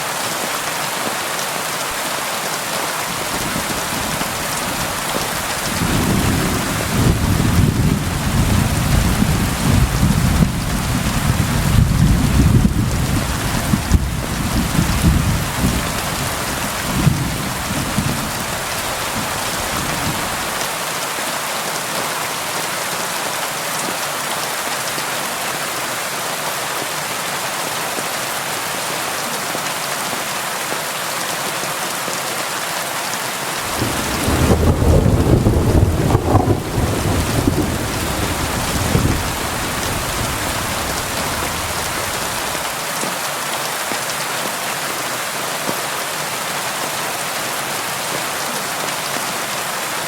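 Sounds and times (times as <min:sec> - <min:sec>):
rain on a window: 0:02.5 - 0:20.9, 0:33.6 - 0:46.0
rolling thunder: 0:03.3 - 0:20.6, 0:33.7 - 0:42.6.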